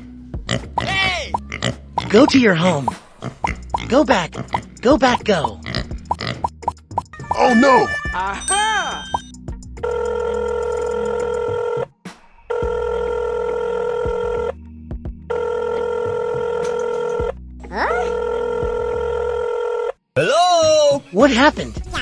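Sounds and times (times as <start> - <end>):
background music: 0.0 - 19.3, 20.2 - 22.0
telephone ringing: 7.2 - 11.7, 15.3 - 17.2.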